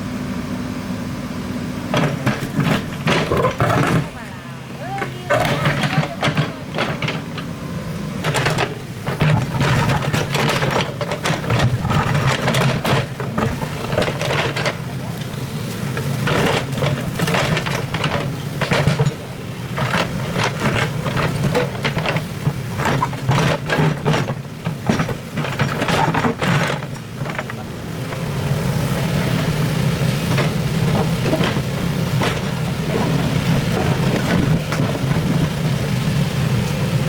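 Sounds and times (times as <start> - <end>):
excavator engine running: 0.0 - 37.0
sharp knocks and scrapes: 1.9 - 4.1, 5.3 - 7.6, 8.2 - 15.4.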